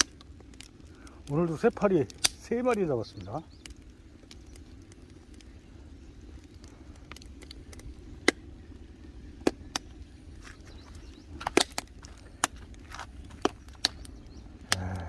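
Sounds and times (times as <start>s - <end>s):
burning wood popping and cracking: 0.0s - 15.0s
wood fire burning: 0.0s - 15.0s.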